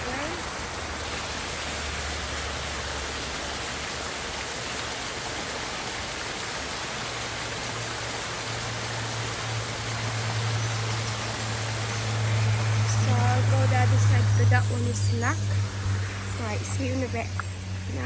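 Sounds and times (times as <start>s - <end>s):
stream water rushing: 0.0s - 18.0s
low steady hum: 7.6s - 18.0s.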